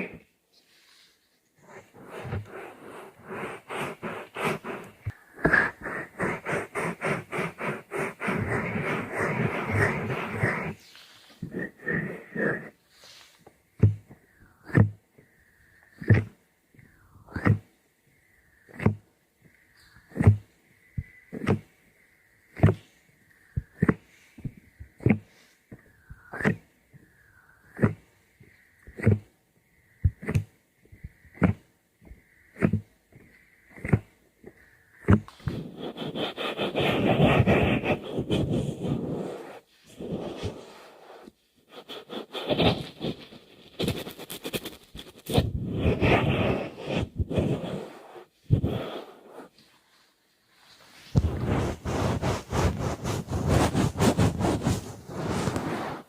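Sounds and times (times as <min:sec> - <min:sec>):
scratching strokes: 0:00.8 - 0:14.0, 0:35.0 - 0:50.0, 0:50.6 - 0:56.0
rough rubbing close to microphone: 0:01.6 - 0:14.9, 0:29.0 - 0:29.3, 0:35.0 - 0:50.0, 0:50.6 - 0:56.0.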